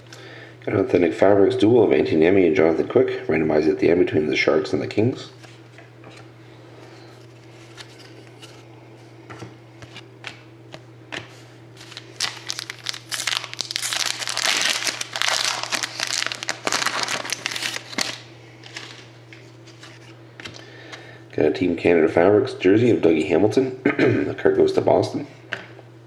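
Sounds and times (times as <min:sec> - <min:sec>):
wrapper crinkling: 0:11.8 - 0:19.1.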